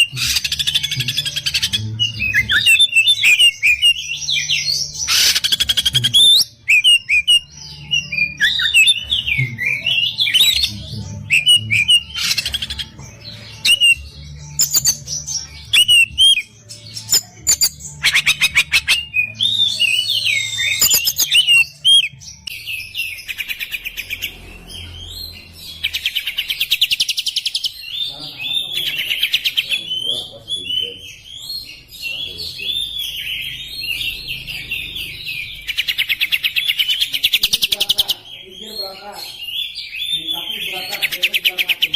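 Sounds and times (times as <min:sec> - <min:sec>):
bird harsh rattling trills: 0:00.0 - 0:06.4
bird singing whistled notes: 0:00.0 - 0:10.7, 0:11.3 - 0:12.7, 0:13.6 - 0:35.0.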